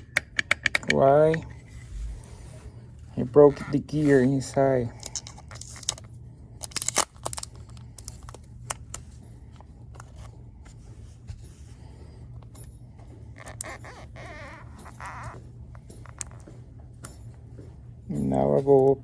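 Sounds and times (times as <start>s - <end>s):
clicks taps and light rattling: 0.0s - 1.5s
steady low hum: 0.0s - 19.0s.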